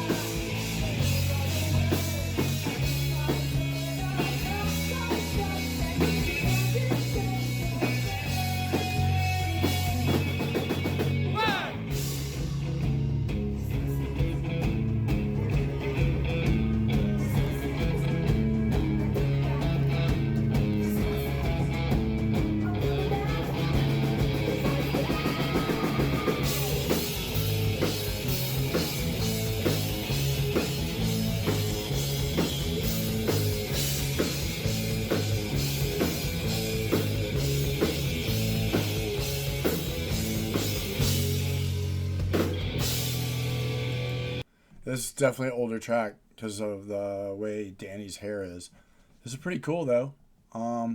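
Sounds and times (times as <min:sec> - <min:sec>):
electric guitar: 0:00.0 - 0:44.4
bass guitar: 0:00.0 - 0:44.5
drum kit: 0:00.0 - 0:44.5
faint vocals: 0:13.2 - 0:27.6.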